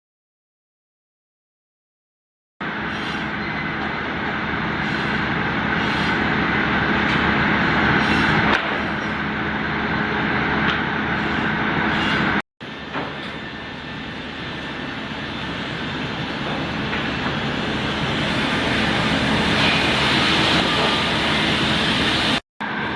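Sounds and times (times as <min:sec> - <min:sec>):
constant machine hum: 0:02.6 - 0:22.9
saw cutting a log: 0:04.8 - 0:06.3.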